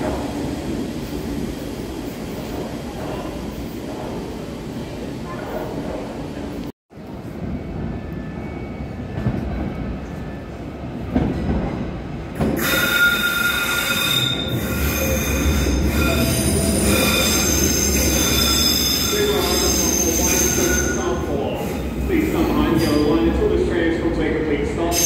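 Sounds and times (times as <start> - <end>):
train rumbling in tunnel: 0.0 - 25.0
high-pitched train squeals: 12.6 - 21.8.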